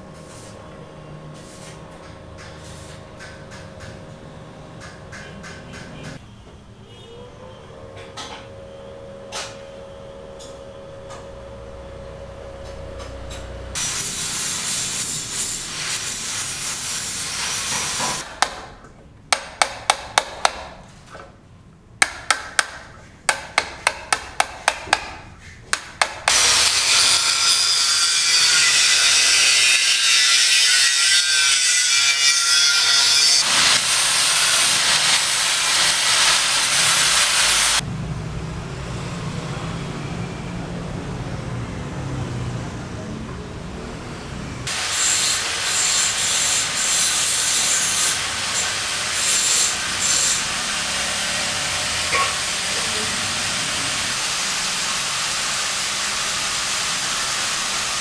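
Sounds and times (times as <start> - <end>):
power tool cutting: 13.8 - 18.6, 26.0 - 37.8, 44.7 - 58.0.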